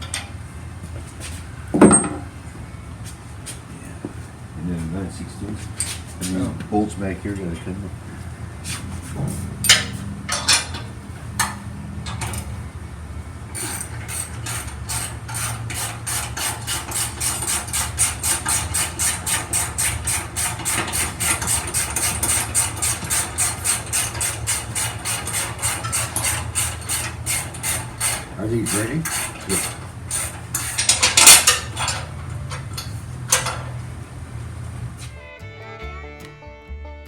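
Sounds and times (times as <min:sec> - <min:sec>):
ratchet wrench clicking: 0:13.6 - 0:33.6.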